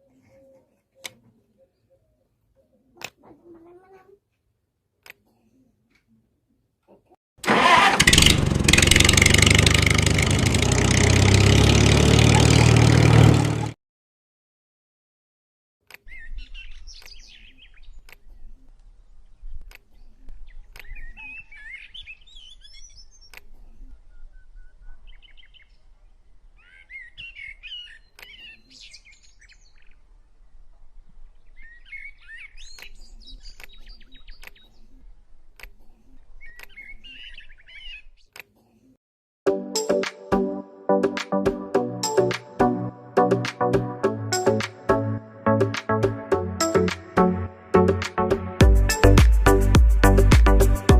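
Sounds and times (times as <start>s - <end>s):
small birds chirping: 15.9s - 38.9s.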